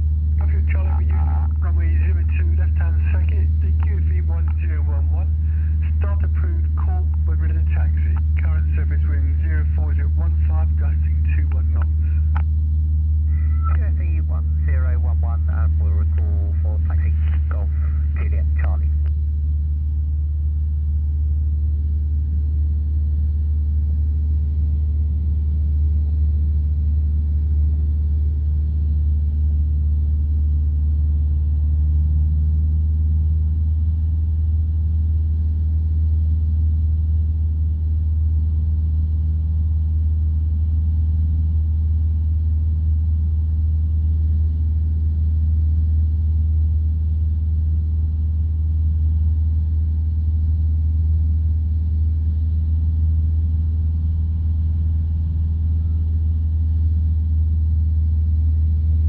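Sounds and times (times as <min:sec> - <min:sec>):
aircraft engine droning: 0:00.0 - 0:59.0.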